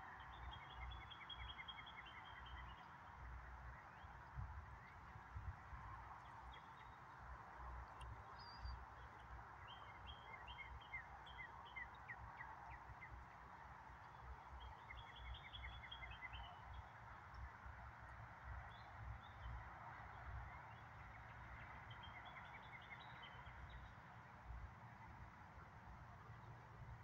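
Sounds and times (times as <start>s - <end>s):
faint outdoor hiss: 0.0s - 27.0s
songbird chirping: 6.1s - 16.9s.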